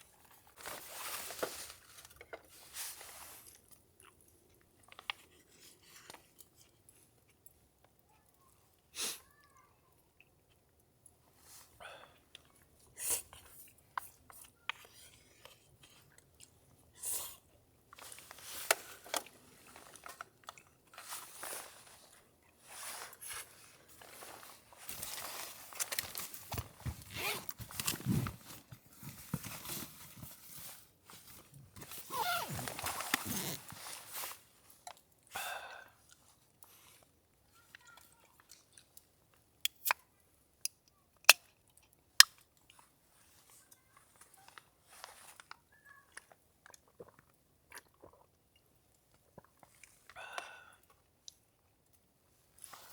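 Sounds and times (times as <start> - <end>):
person chewing crunchy food: 46.2 - 48.4.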